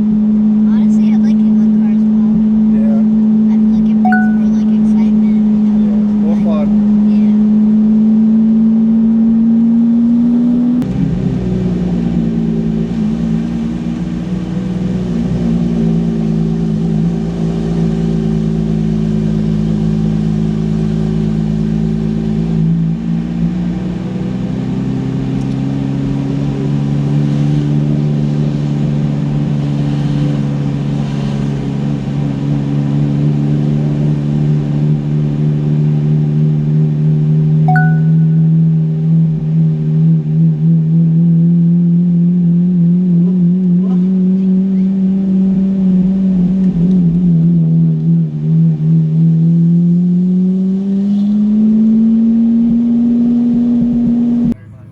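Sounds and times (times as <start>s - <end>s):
car engine running: 54.4s - 54.9s.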